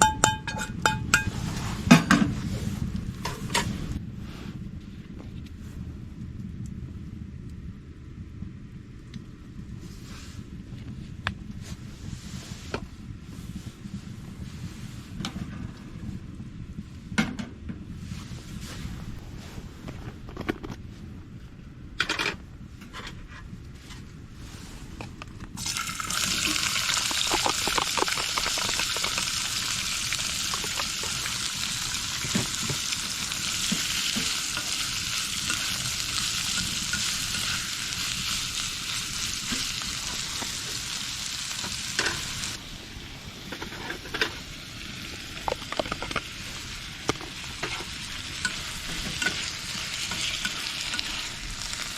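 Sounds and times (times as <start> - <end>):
food sizzling in a pan: 25.6 - 42.6, 44.4 - 51.9.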